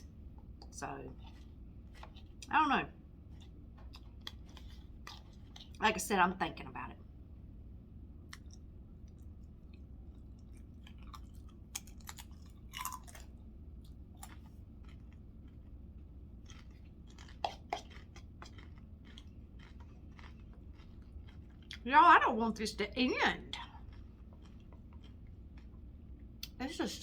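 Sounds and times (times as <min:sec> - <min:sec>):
person chewing food: 0:00.0 - 0:05.8, 0:08.1 - 0:21.8, 0:23.4 - 0:26.5
low room hum: 0:00.0 - 0:27.0
wet mouth clicks: 0:17.4 - 0:18.3.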